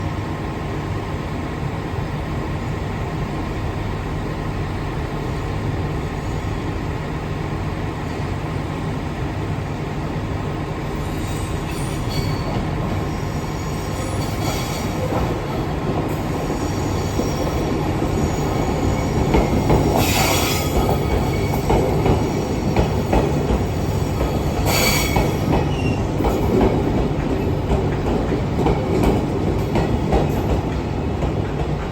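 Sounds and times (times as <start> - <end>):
train rumbling past: 0.0 - 31.9
high wheel squeals: 11.0 - 15.1, 16.3 - 23.1, 23.8 - 26.1.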